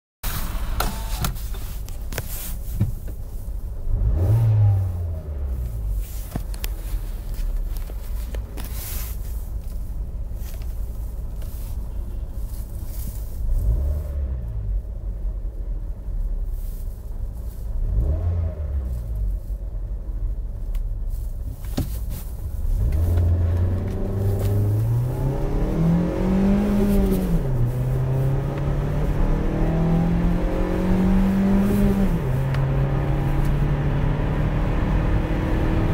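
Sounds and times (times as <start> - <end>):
car engine accelerating hard: 3.8 - 6.0, 13.5 - 14.9, 17.8 - 19.5, 22.4 - 35.9
car engine idling: 5.0 - 13.7
engine throttle blips: 22.4 - 35.9.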